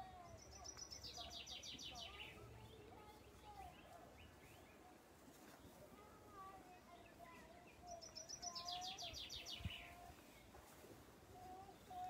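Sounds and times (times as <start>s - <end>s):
soft bird chirps: 0.1s - 5.8s, 6.9s - 10.5s.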